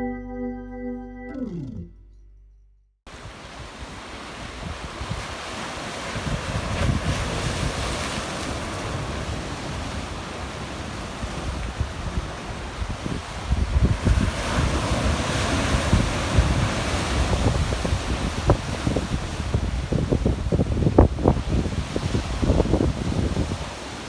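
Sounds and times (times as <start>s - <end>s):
wind buffeting microphone: 3.2s - 8.2s, 10.9s - 24.0s
waves splashing on rocky shore: 3.2s - 24.0s.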